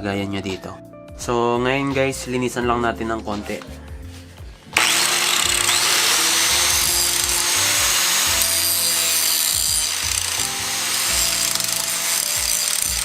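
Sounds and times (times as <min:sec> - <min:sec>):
power grinder grinding steel: 0:04.8 - 0:13.0.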